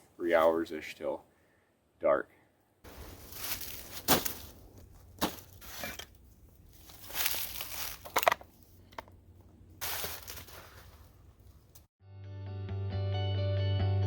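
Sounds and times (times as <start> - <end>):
dry twigs crunching and crackling: 2.9 - 11.9
twigs snapping: 6.8 - 9.2.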